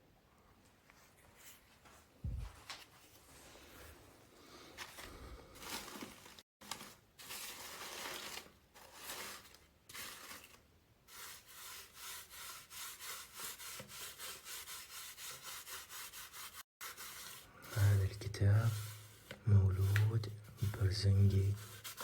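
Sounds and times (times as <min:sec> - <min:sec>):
rubbing and scraping on book: 0:11.1 - 0:22.0.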